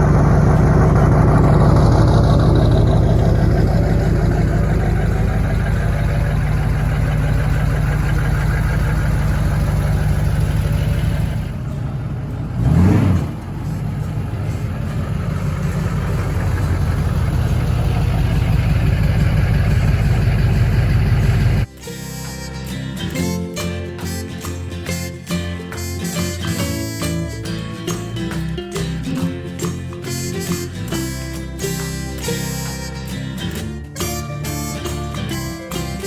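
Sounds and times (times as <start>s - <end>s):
engine rev blip: 0.0s - 21.7s
vehicle engine running: 0.0s - 21.7s.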